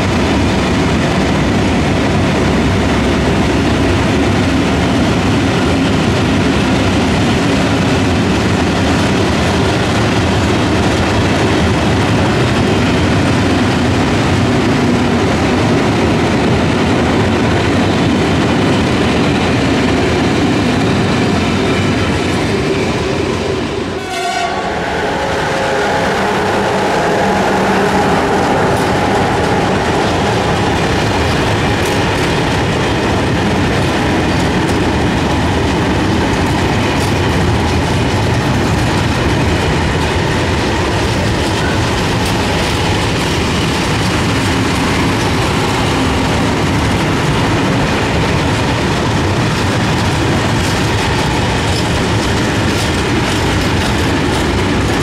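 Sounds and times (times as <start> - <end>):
train rumbling past: 0.0 - 55.0
wheels clattering over rail joints: 28.0 - 55.0.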